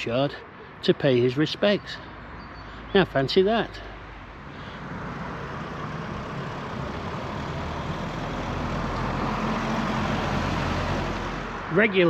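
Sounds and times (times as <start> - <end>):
heavy vehicle engine driving past: 4.3 - 11.8.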